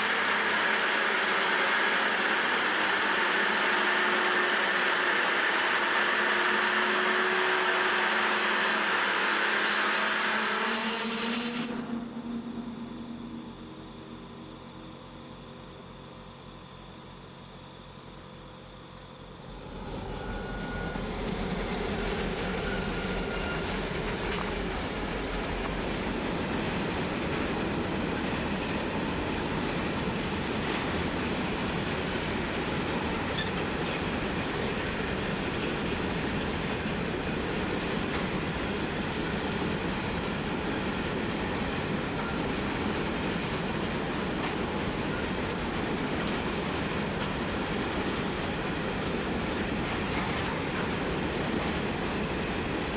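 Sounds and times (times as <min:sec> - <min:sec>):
diesel locomotives running: 0:00.0 - 0:52.9
wagons rolling on rails: 0:19.6 - 0:52.9.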